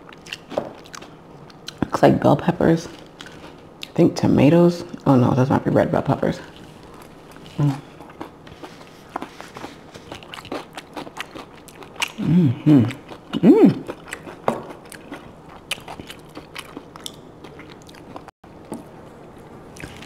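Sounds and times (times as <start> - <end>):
crunchy chewing of salad: 0.0 - 1.9, 2.9 - 4.0, 6.4 - 20.0
person humming: 12.2 - 13.8.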